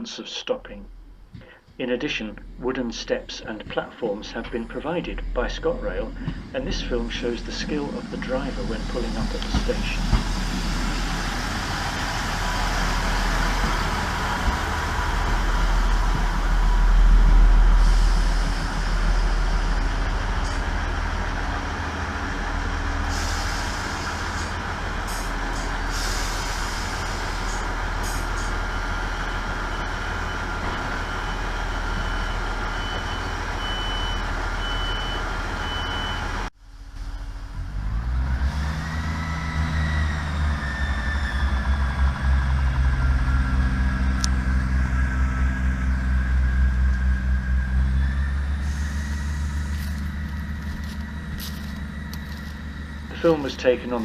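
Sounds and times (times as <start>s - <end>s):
diesel train rumbling: 0.0s - 54.0s
train engine revving: 0.8s - 54.0s.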